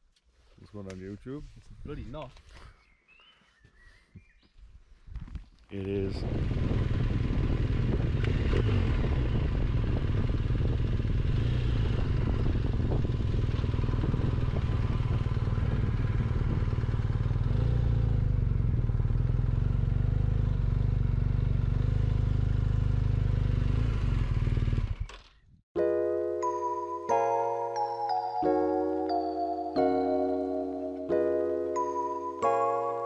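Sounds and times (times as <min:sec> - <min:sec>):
motorcycle engine rumbling: 0:05.8 - 0:25.6.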